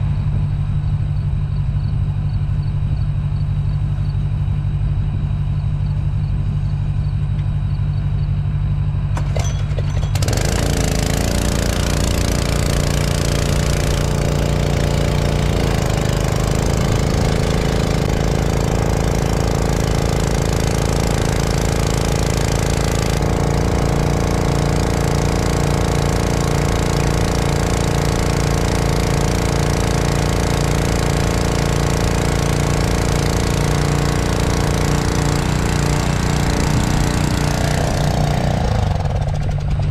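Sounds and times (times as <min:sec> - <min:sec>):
tractor engine running: 0:00.0 - 0:39.9
rattling clatter: 0:09.1 - 0:19.0.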